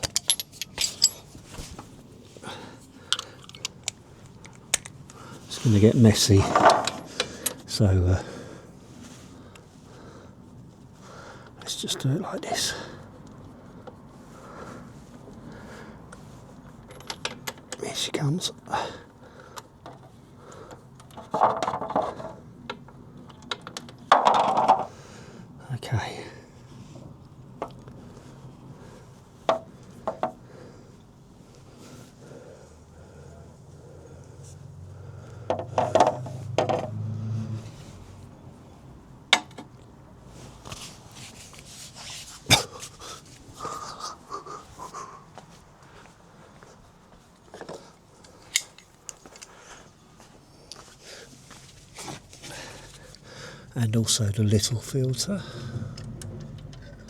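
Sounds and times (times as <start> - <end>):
clicks and knocks of tools: 0.0 - 1.9, 3.1 - 5.2, 6.5 - 7.6, 16.8 - 17.8, 19.6 - 24.9, 39.3 - 39.9, 47.5 - 49.6, 55.8 - 57.0
person breathing heavily: 2.3 - 3.6, 6.9 - 11.6, 12.7 - 16.1, 30.0 - 35.5, 42.5 - 46.8, 49.3 - 50.1, 50.7 - 51.6, 52.4 - 53.7, 55.3 - 56.1.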